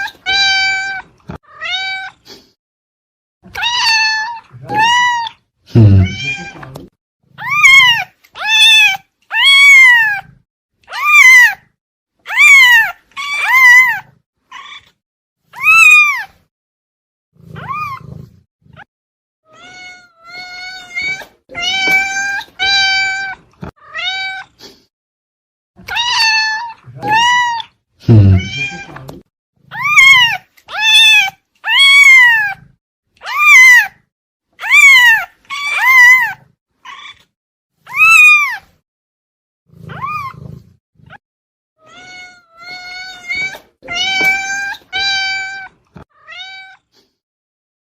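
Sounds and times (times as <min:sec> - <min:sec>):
cat meowing: 0:00.0 - 0:02.2, 0:03.5 - 0:06.8, 0:07.4 - 0:10.3, 0:10.9 - 0:11.6, 0:12.3 - 0:15.0, 0:17.5 - 0:18.2, 0:19.5 - 0:24.5, 0:25.8 - 0:29.0, 0:29.7 - 0:34.0, 0:34.6 - 0:37.3, 0:37.9 - 0:38.7, 0:39.9 - 0:40.4, 0:41.8 - 0:46.9.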